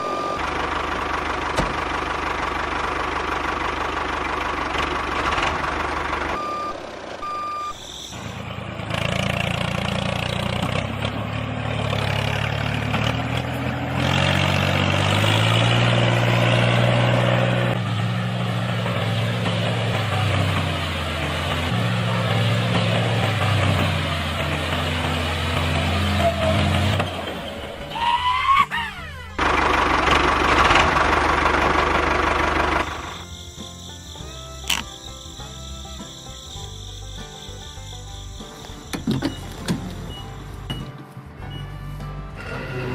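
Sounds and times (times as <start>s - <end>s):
electronic reversing beeps: 0.0s - 0.5s, 6.3s - 8.4s
small tractor motor running: 0.0s - 40.9s
deep motor hum: 8.6s - 42.9s.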